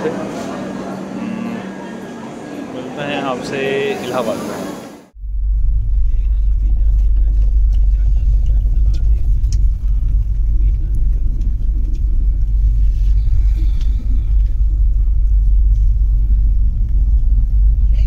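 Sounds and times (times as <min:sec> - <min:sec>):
deep rumble of train wheels: 0:00.0 - 0:18.0.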